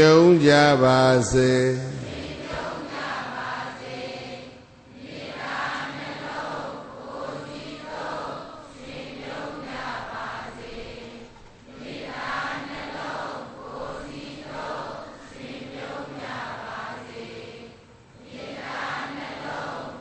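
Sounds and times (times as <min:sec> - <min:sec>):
congregation chanting in unison: 0:00.0 - 0:20.0.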